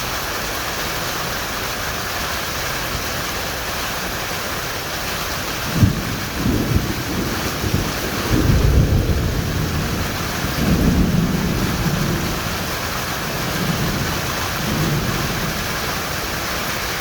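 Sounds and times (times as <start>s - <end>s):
heavy rain pouring: 0.0s - 17.0s
low thunder rumbling: 5.5s - 17.0s.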